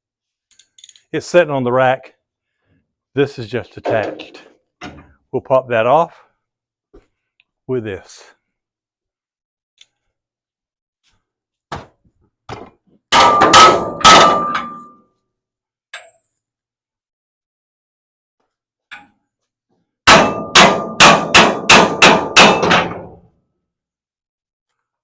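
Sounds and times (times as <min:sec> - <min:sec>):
hammer striking steel: 0:13.1 - 0:15.0, 0:20.1 - 0:23.1.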